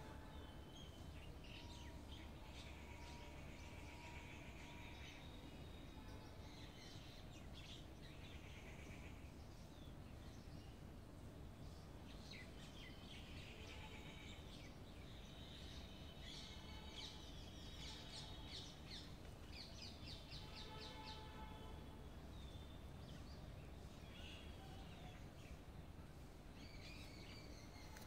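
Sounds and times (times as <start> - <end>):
low steady outdoor rumble: 0.0 - 28.0
songbirds chirping and trilling: 0.0 - 28.0.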